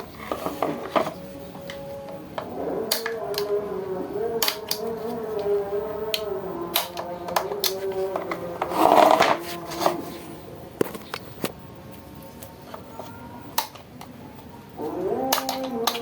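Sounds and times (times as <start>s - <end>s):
faint wavering hum: 0.0s - 15.9s
scraping rasp: 7.8s - 10.3s
clicks of small hard objects: 15.2s - 16.0s.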